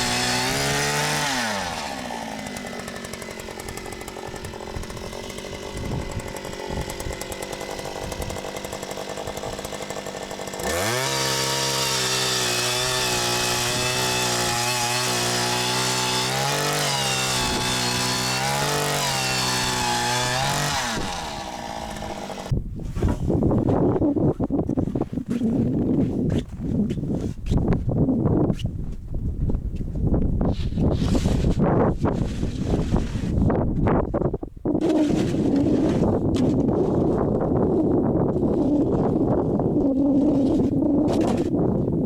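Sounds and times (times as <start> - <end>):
ice auger engine drilling: 0.0 - 22.6, 34.8 - 41.6.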